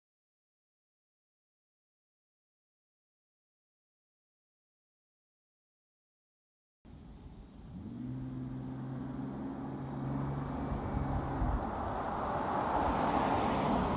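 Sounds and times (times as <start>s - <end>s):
tyre and wind noise: 10.7s - 13.9s.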